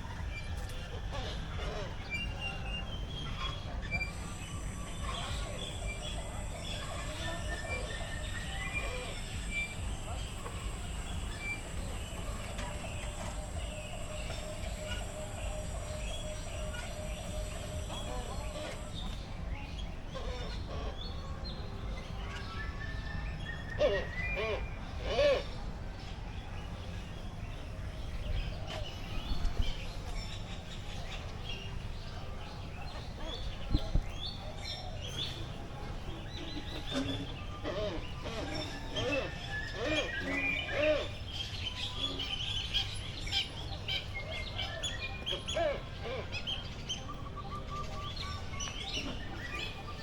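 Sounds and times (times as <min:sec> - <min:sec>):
birds chirping and calling: 0:00.0 - 0:50.0.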